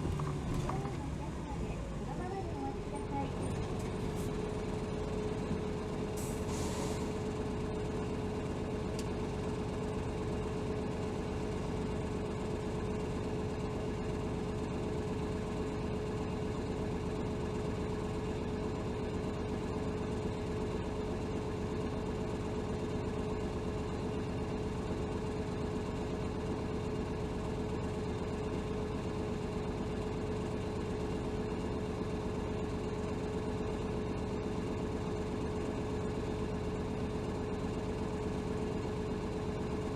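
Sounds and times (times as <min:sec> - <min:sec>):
bus diesel engine humming: 0:00.0 - 0:25.0, 0:25.8 - 0:39.9
brief hiss: 0:06.3 - 0:07.1.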